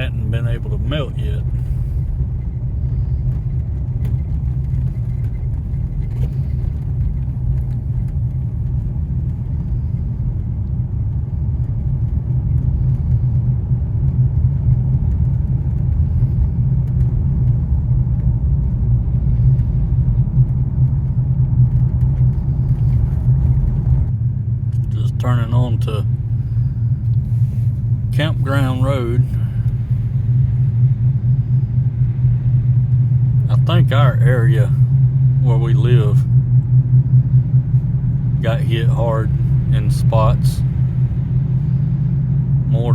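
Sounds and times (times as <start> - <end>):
car engine rumble from inside: 0.0 - 42.9
tyres on road: 0.0 - 42.9.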